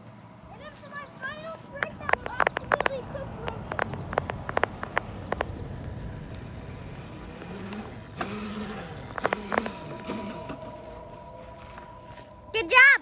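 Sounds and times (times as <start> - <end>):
dirt bike motor running: 0.7 - 11.9
sharp clicks and knocks: 1.8 - 6.4, 7.4 - 10.6.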